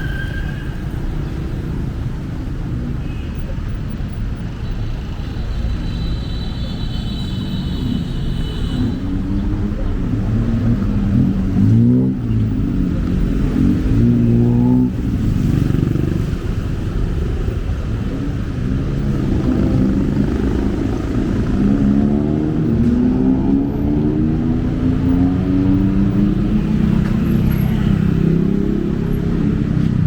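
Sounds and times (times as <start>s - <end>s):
vehicle engines speeding up: 9.1s - 30.0s.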